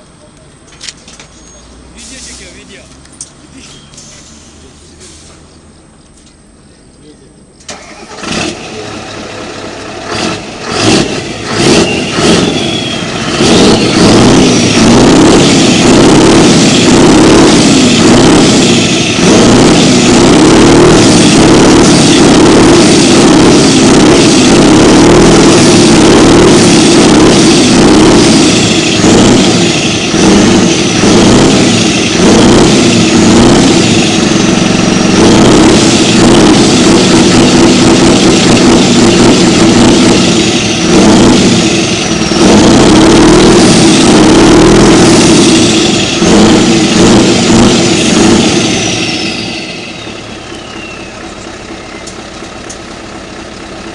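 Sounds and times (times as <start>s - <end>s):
diesel truck engine revving: 1.4s - 6.0s, 7.6s - 53.9s
high whistle: 11.7s - 14.7s, 48.6s - 52.2s.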